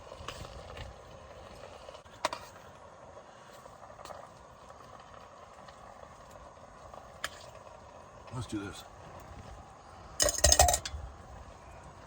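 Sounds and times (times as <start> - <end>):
metal utensil clicking on cookware: 10.2 - 10.9.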